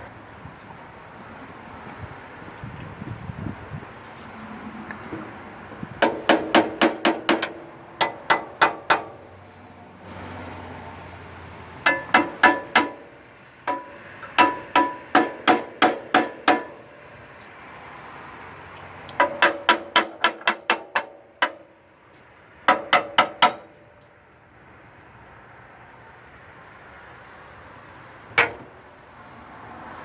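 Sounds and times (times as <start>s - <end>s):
hammer striking metal: 6.0s - 9.3s, 11.8s - 17.0s, 19.2s - 21.8s, 22.7s - 23.9s, 28.4s - 28.8s.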